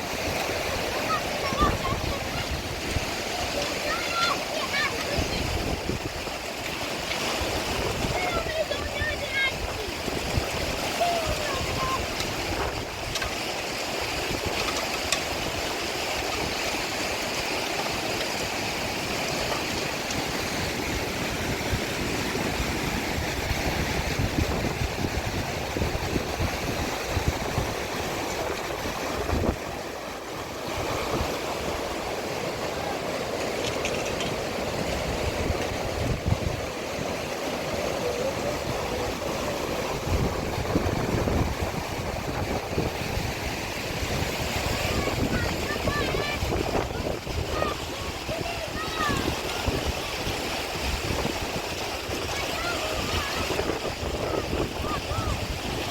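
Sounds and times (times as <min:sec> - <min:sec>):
rushing water: 0:00.0 - 0:55.9.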